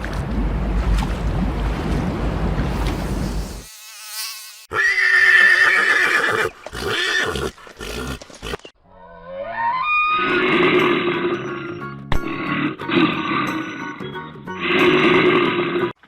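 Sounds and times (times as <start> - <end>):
horse whinnying: 4.7 - 8.7.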